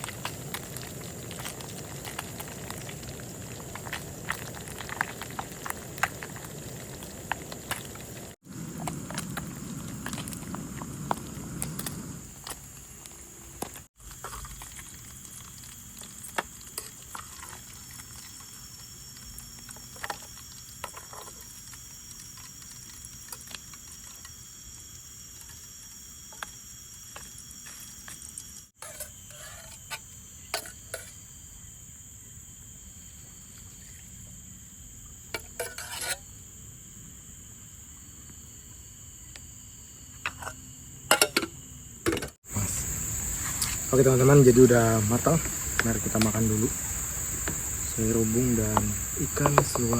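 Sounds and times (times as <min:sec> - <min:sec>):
crickets chirping: 0:00.0 - 0:49.9
utensil stirring food in pot: 0:28.8 - 0:31.2, 0:35.4 - 0:36.2.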